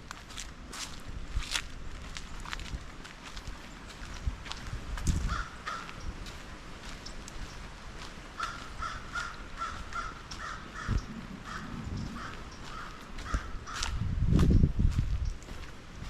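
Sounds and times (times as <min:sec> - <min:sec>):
crows cawing: 0:05.2 - 0:06.1, 0:08.4 - 0:14.0.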